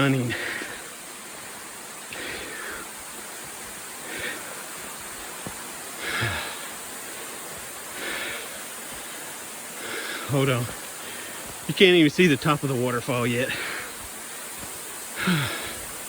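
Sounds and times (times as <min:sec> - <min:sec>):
waterfall rushing: 0:00.0 - 0:16.0
person breathing: 0:00.3 - 0:01.0, 0:02.1 - 0:03.0, 0:03.9 - 0:04.9, 0:05.9 - 0:11.6, 0:13.5 - 0:16.0.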